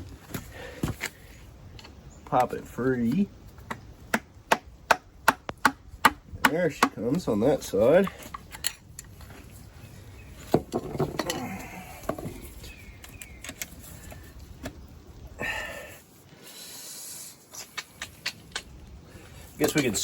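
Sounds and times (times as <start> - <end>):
metal knocks clinks and scrapes: 8.0 - 9.5, 19.6 - 20.0.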